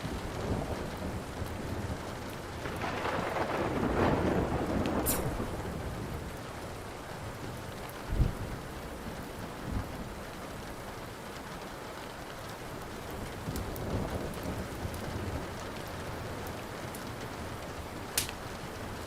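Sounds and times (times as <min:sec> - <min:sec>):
low roll of thunder: 0:00.0 - 0:10.4, 0:13.0 - 0:18.0
steady rain: 0:00.0 - 0:19.0
wood fire crackling: 0:00.0 - 0:19.0
sharp pop from fire: 0:05.0 - 0:05.4, 0:18.2 - 0:18.4.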